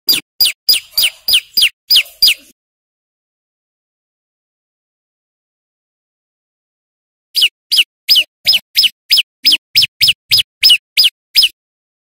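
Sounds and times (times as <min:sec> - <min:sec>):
bird calling sharp notes: 0:00.1 - 0:02.5, 0:07.4 - 0:11.6.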